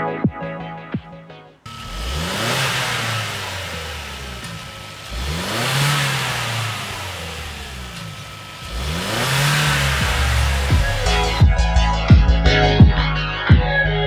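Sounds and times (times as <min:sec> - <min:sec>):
car engine revving: 0:01.7 - 0:12.1.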